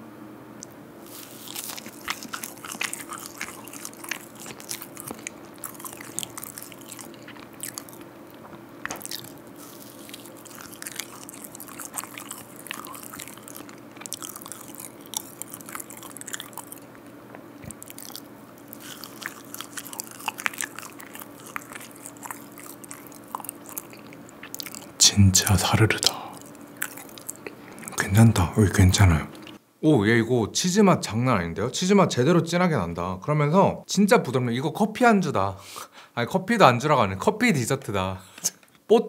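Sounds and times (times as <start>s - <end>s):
biting and chewing mouth sounds: 0.6s - 29.6s.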